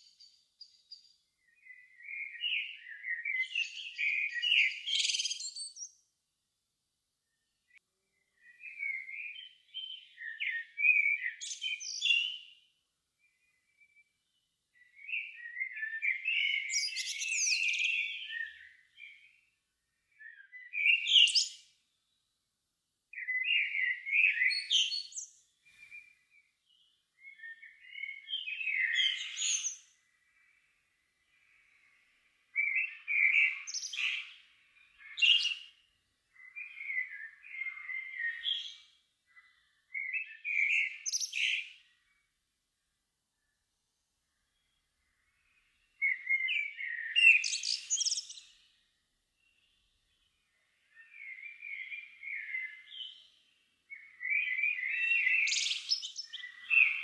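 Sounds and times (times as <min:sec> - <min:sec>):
songbird warbling: 0:53.9 - 0:57.0.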